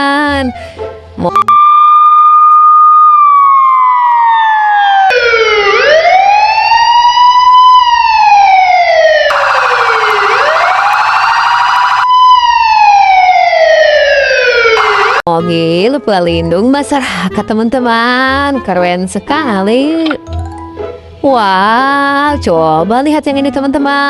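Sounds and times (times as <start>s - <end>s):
buzzy siren layer: 1.4s - 15.3s
police siren wailing: 1.4s - 15.3s.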